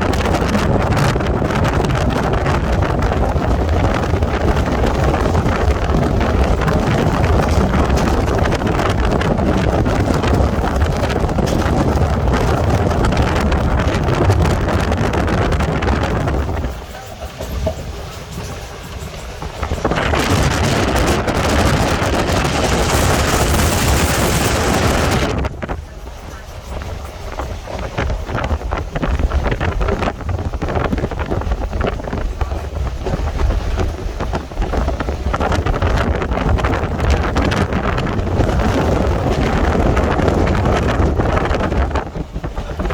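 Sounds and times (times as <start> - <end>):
train running rumble: 0.0 - 42.9
wind buffeting microphone: 0.0 - 42.9.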